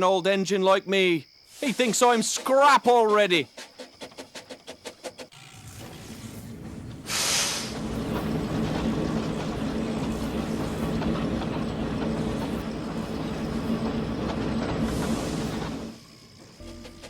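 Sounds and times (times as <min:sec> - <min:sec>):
loud train hiss: 0:01.5 - 0:02.2, 0:06.1 - 0:16.3
wheels clattering on track: 0:03.6 - 0:17.0
train running rumble: 0:05.6 - 0:17.0.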